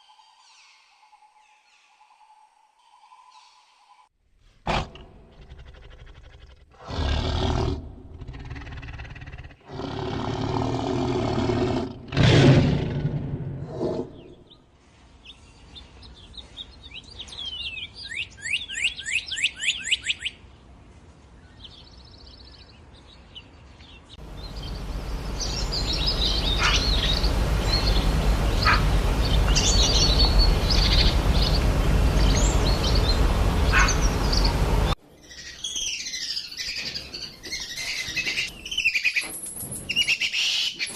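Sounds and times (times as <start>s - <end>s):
birds chirping: 21.5s - 40.9s
loud steady rushing noise: 24.2s - 35.0s
falling chirping bird notes: 24.2s - 40.9s
loud animal calls: 24.5s - 35.0s.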